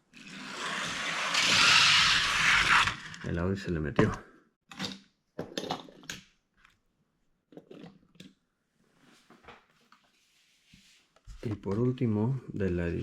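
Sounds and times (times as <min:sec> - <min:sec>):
faint scrapes and crinkles: 0:08.8 - 0:11.9.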